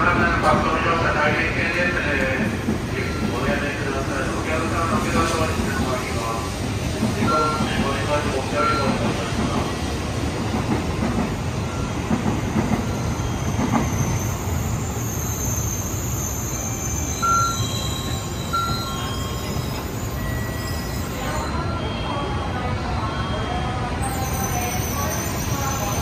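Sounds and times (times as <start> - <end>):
short high beeps: 17.1 - 22.2.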